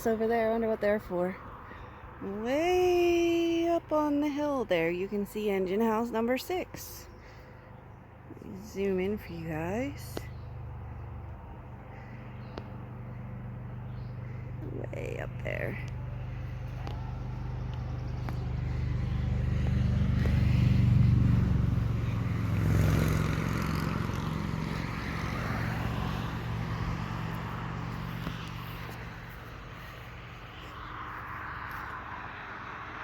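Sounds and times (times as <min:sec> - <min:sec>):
motor vehicle passing by: 0:06.8 - 0:33.0.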